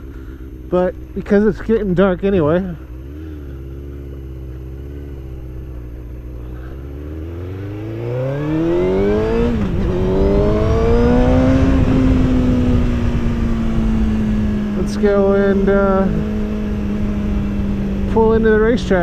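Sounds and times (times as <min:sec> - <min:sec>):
motorcycle engine accelerating: 0:00.0 - 0:19.0
wind noise: 0:08.6 - 0:14.9.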